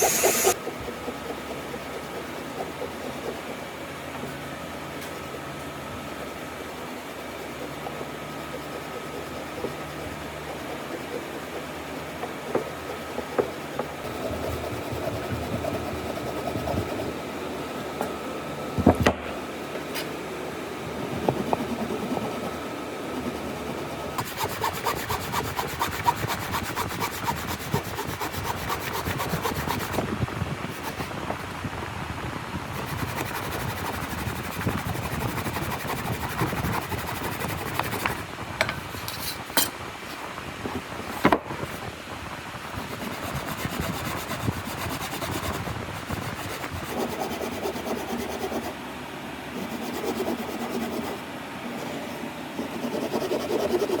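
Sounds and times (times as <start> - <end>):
wood scraped by hand: 0.0 - 3.6, 23.2 - 30.0.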